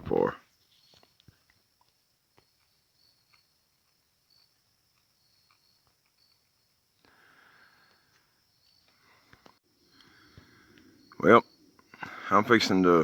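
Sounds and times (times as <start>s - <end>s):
faint insects chirping: 0.1s - 13.0s
soft rustle: 0.4s - 4.0s.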